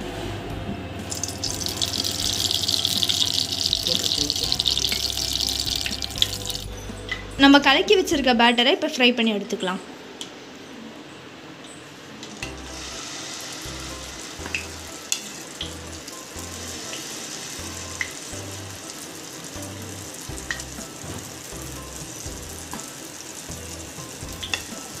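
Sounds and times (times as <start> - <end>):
oil popping and spattering: 1.1 - 6.7
batter sizzling in a pan: 1.1 - 6.8, 12.4 - 25.0.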